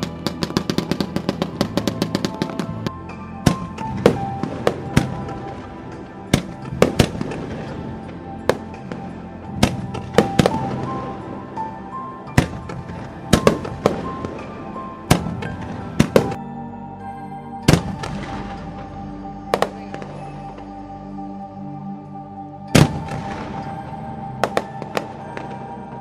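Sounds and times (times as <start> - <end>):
fireworks bursting: 0.0 - 11.7, 12.3 - 16.4, 24.4 - 25.6
music playing: 0.0 - 26.0.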